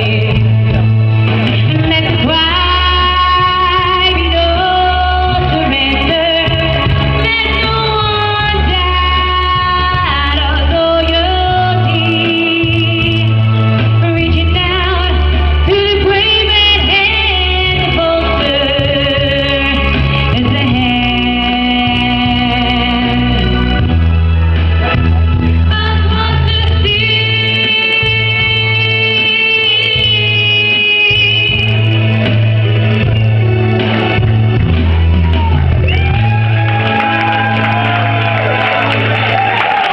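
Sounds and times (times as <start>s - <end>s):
woman singing: 0.0s - 0.7s, 1.4s - 23.8s, 25.7s - 32.6s
held bass notes: 0.0s - 39.9s.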